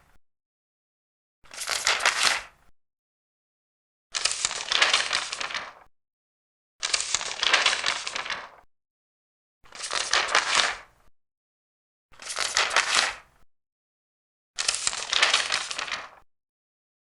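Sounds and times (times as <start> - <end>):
paper pages turning: 1.5 - 2.5, 4.1 - 5.9, 6.8 - 8.6, 9.7 - 10.8, 12.2 - 13.2, 14.6 - 16.2.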